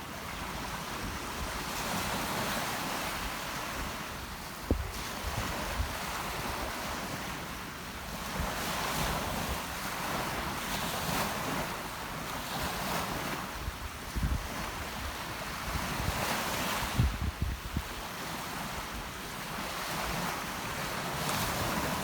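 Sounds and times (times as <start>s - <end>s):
sea surf washing in: 0.0s - 22.0s
wind buffeting microphone: 0.4s - 7.1s, 12.8s - 18.0s.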